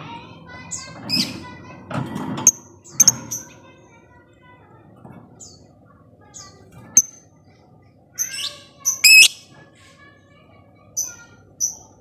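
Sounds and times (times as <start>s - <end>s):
lovebird chirping: 8.9s - 9.4s
bird squawk: 9.0s - 9.4s
piercing bird call: 9.0s - 9.4s.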